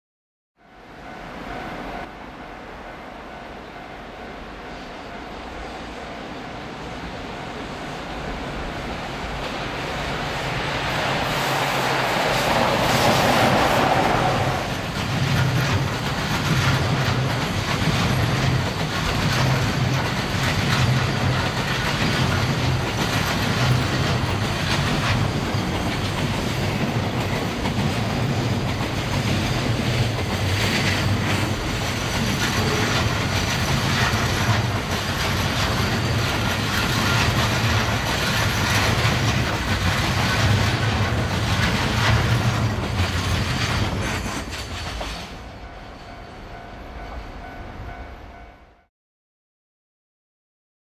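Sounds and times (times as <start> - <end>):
electric locomotive passing: 0.6 - 48.9
wagon wheels clattering over rail joints: 14.8 - 45.2.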